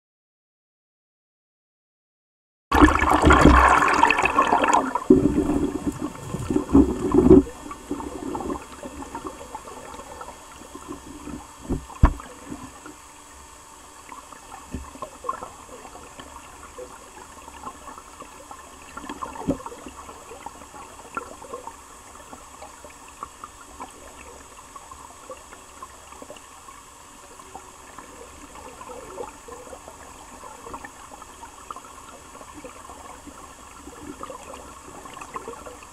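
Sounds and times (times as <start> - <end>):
river water gurgling and splashing: 2.7 - 13.0, 27.4 - 35.9.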